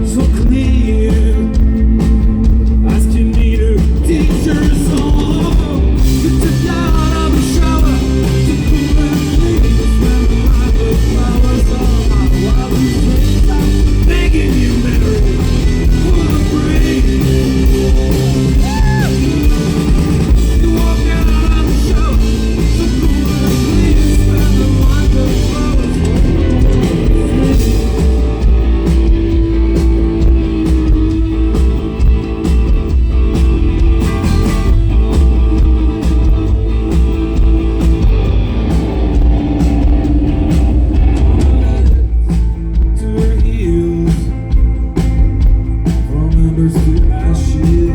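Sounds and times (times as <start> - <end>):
person singing: 0.0 - 28.7, 34.9 - 38.4, 41.2 - 44.8, 45.9 - 47.9
rock band playing: 0.0 - 47.9.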